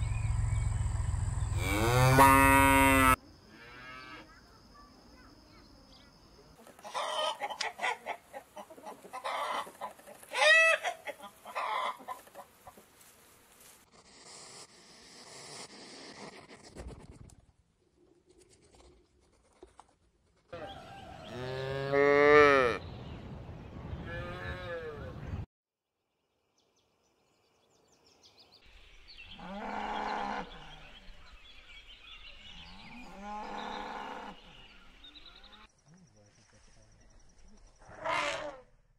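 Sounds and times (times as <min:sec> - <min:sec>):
cattle mooing: 0:01.5 - 0:04.2, 0:29.4 - 0:30.9, 0:32.6 - 0:34.5.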